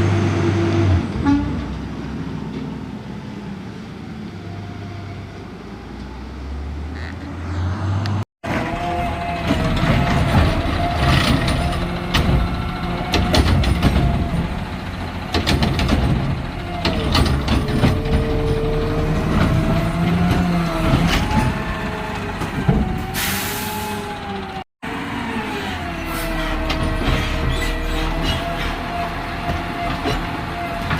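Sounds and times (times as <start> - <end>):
metal clanks and knocks: 8.4 - 23.1, 26.5 - 30.9
diesel engine running: 8.4 - 30.9.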